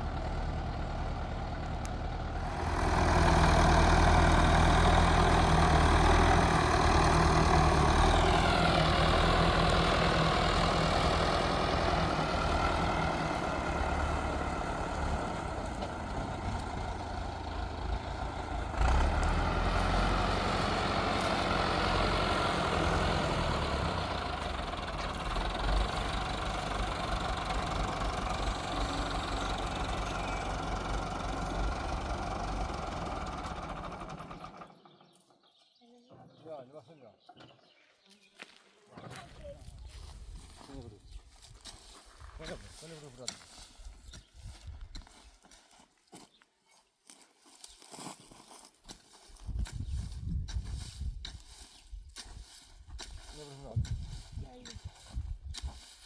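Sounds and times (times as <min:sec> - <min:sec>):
heavy farm machine engine: 0:00.0 - 0:35.0, 0:49.4 - 0:56.0.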